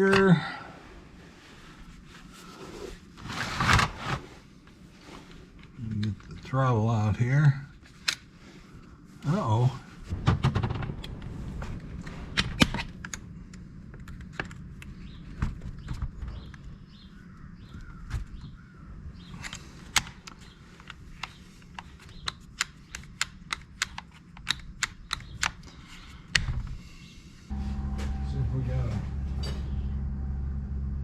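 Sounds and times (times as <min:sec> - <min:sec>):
low steady hum: 0:00.0 - 0:17.9, 0:26.7 - 0:31.0.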